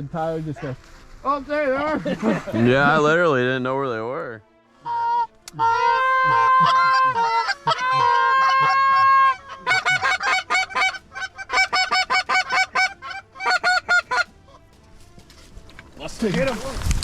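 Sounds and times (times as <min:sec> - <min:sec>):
goose honking: 0:04.8 - 0:14.6.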